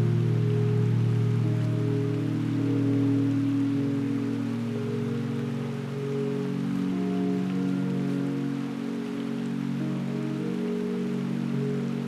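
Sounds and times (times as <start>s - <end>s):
soft sustained chords music: 0.0s - 12.0s
steady hiss: 0.0s - 12.0s.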